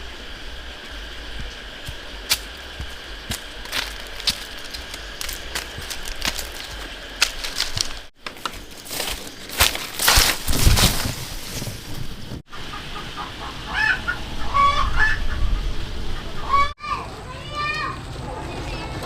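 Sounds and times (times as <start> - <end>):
chickens clucking: 12.5 - 16.7.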